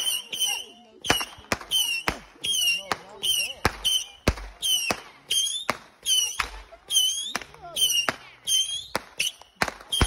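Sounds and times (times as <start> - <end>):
fireworks sharp bangs: 0.0 - 10.0
fireworks whistling shots: 0.0 - 10.0.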